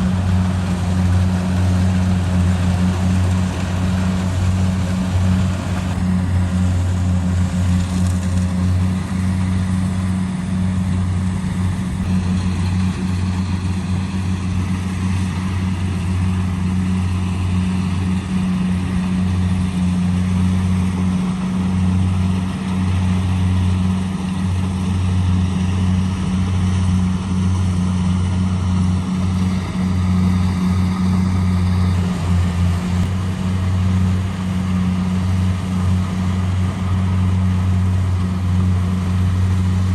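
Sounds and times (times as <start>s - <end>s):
combine harvester engine humming: 0.0s - 39.9s.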